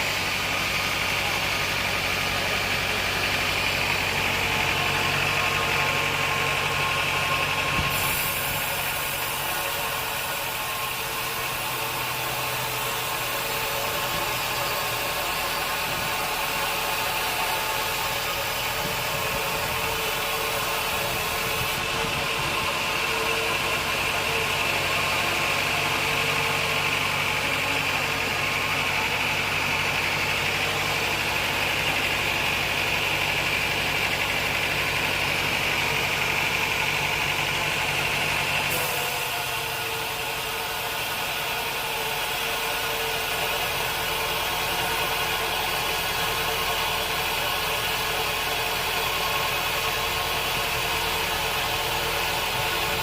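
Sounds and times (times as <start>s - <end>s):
band sawmill motor whine: 0.0s - 53.0s
sharp high hiss: 7.8s - 9.7s.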